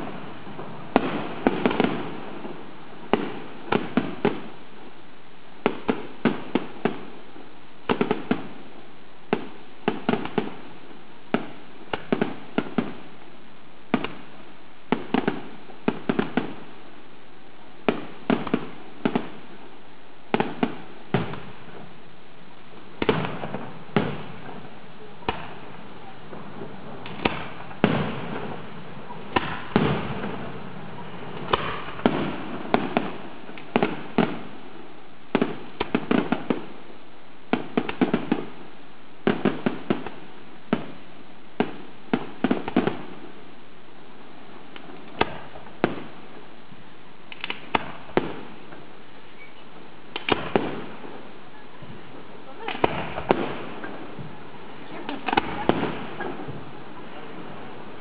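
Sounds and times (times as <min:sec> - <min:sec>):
fireworks bursting with sharp bangs: 0:00.0 - 0:58.0
fireworks display rumble: 0:00.0 - 0:58.0.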